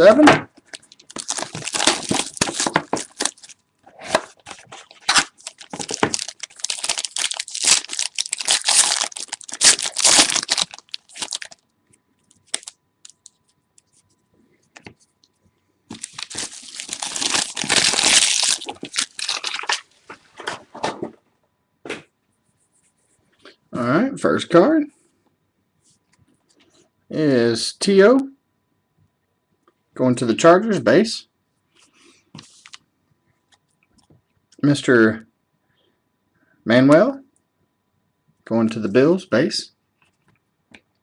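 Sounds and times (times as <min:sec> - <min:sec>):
plastic wrapping tearing and crinkling: 0:00.7 - 0:11.6, 0:12.4 - 0:13.4, 0:15.9 - 0:19.9.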